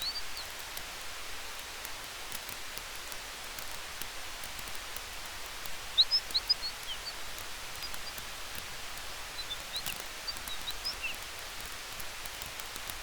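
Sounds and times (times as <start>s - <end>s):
campfire crackling: 0.0s - 13.0s
wind in trees: 4.1s - 13.0s.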